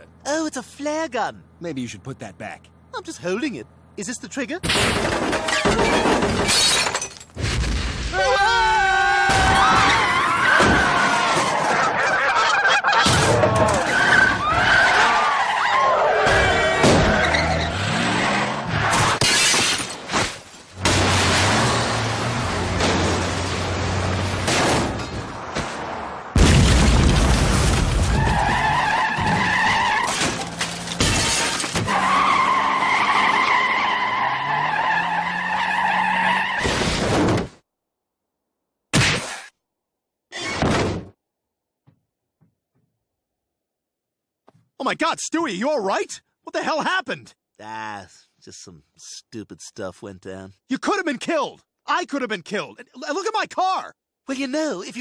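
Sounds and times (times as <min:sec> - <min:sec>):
vehicle noise: 0:00.0 - 0:08.0, 0:09.5 - 0:37.4
glass shattering: 0:04.6 - 0:07.4, 0:18.9 - 0:22.1, 0:30.0 - 0:31.9
car crashes: 0:04.6 - 0:08.4, 0:09.1 - 0:37.6
tyres screeching: 0:08.2 - 0:25.1, 0:28.1 - 0:36.8
cartoon geese honking: 0:10.0 - 0:17.5
crash thuds: 0:18.9 - 0:28.6.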